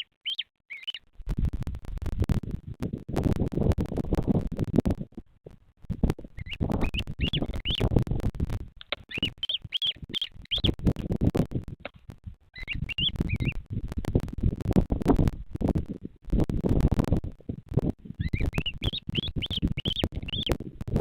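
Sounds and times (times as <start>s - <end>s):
bird chirping: 0.0s - 1.1s, 6.3s - 8.0s, 8.9s - 10.8s, 12.6s - 13.6s, 18.2s - 20.6s
low rumbling crackle: 0.9s - 21.0s.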